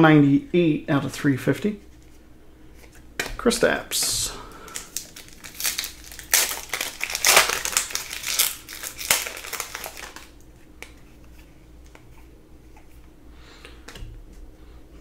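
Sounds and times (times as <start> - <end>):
plastic wrapper crinkling: 4.0 - 10.5.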